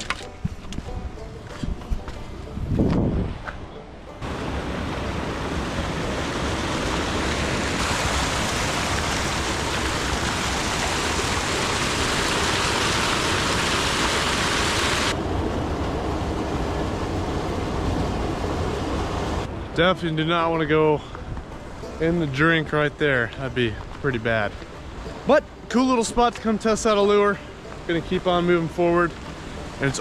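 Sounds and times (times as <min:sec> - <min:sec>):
stream water rushing: 0:00.0 - 0:30.0.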